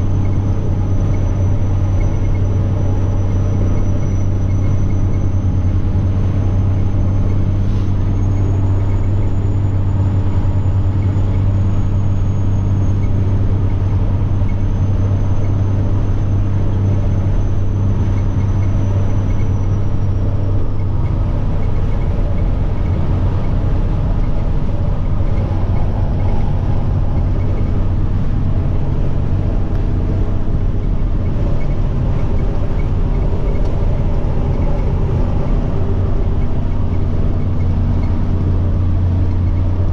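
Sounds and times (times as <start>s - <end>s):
truck diesel engine running: 0.0s - 39.9s
turbocharger whine: 0.0s - 39.9s.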